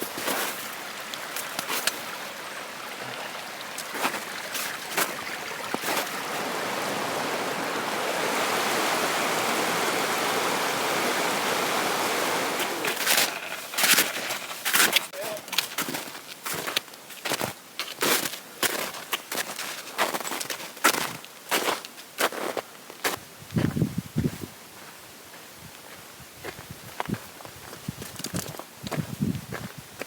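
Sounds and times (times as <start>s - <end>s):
footsteps on a trail: 0.0s - 7.8s, 12.6s - 30.0s
steady rushing noise: 6.1s - 12.9s.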